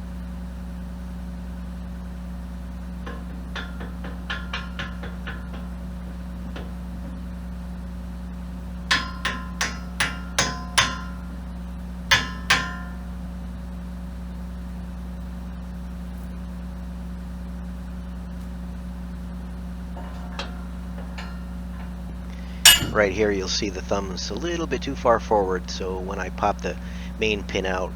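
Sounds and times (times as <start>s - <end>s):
low engine idle: 0.0s - 27.9s
hammer striking steel pin: 3.0s - 6.8s, 8.9s - 11.4s, 12.1s - 13.1s, 20.0s - 24.6s.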